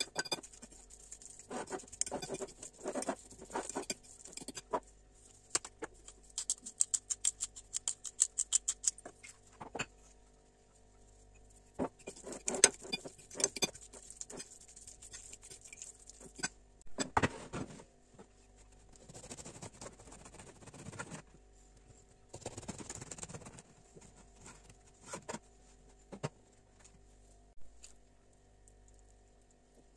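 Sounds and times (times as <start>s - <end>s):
utensils knocking and scraping: 1.4s - 4.8s, 11.8s - 14.4s.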